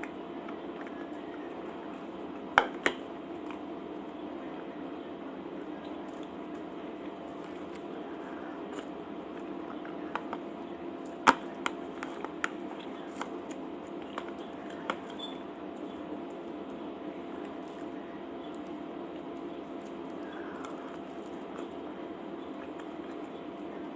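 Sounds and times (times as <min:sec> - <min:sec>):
steady background hum: 0:00.0 - 0:23.9
chewing food: 0:05.6 - 0:23.9.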